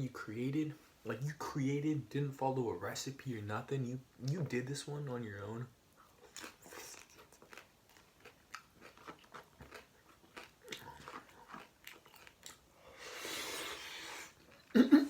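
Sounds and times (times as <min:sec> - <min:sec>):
person chewing food: 0:06.0 - 0:14.8
breathy hiss: 0:12.7 - 0:14.4.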